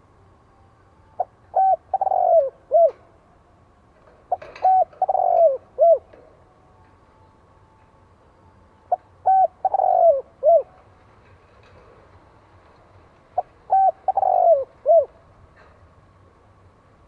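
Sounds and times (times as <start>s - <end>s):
dove cooing: 1.2s - 3.1s, 4.2s - 6.4s, 8.9s - 10.8s, 13.4s - 15.2s.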